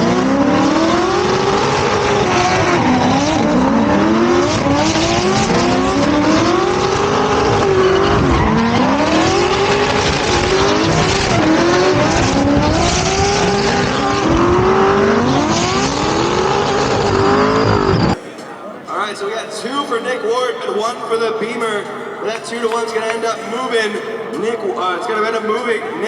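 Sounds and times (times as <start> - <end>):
car engines revving hard: 0.0 - 18.2
tyre squeal: 1.0 - 18.2.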